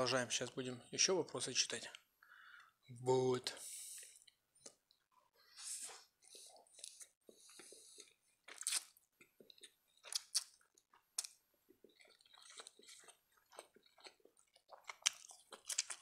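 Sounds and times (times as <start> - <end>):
chewing spaghetti: 6.1 - 16.0
wet mouth smacks and clicks: 8.5 - 11.4.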